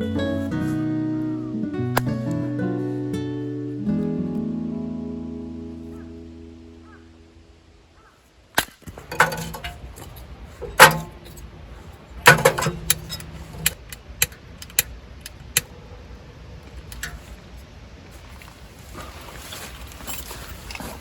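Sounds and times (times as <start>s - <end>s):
metallic clinks and knocks: 8.9s - 11.4s, 12.3s - 13.9s.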